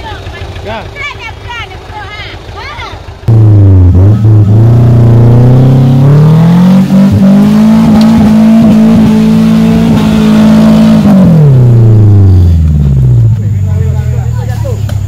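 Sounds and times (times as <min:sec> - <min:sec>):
engine revving: 0:03.2 - 0:14.9.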